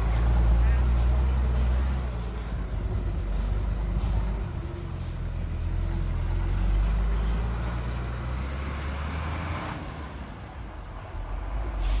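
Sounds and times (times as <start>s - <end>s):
heavy diesel engine rumbling: 0.0s - 12.0s
brief hiss: 11.7s - 12.0s.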